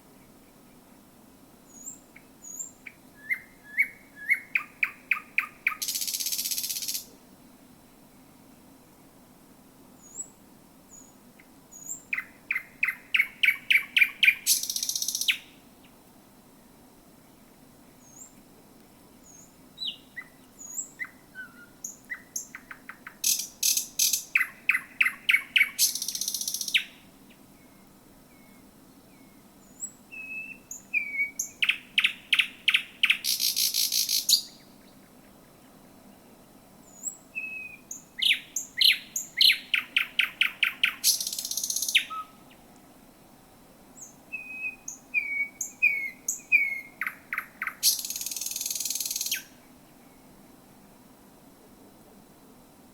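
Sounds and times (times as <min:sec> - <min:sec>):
nightingale singing: 0:01.6 - 0:07.2, 0:10.0 - 0:16.0, 0:17.2 - 0:18.5, 0:19.1 - 0:42.7, 0:44.0 - 0:50.3.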